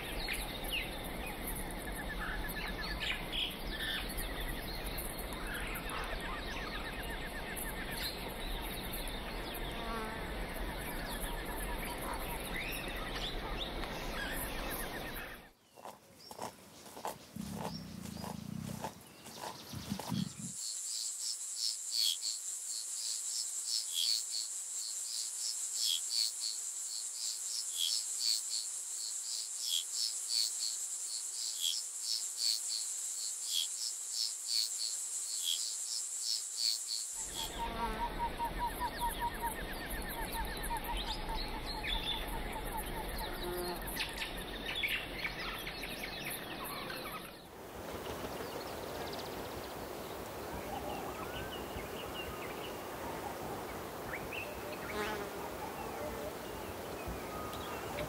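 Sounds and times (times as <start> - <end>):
insect chorus: 0.0 - 58.0
birds trilling: 17.0 - 20.5.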